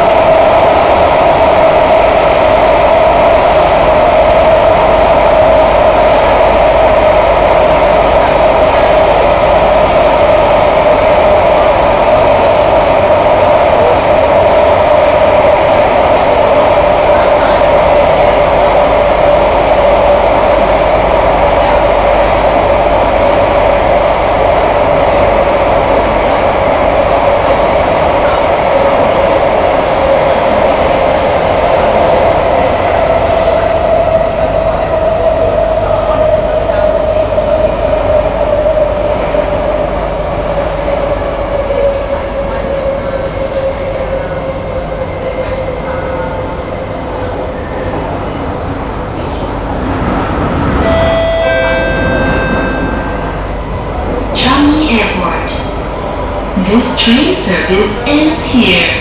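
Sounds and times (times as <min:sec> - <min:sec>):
metro train rumble: 0:00.0 - 0:59.0
train whine sinking in pitch: 0:50.8 - 0:54.5.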